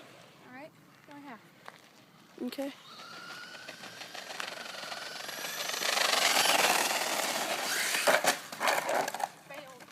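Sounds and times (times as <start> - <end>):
electric toy car motor whining: 2.6 - 9.3
rattling tyre noise: 2.8 - 9.9.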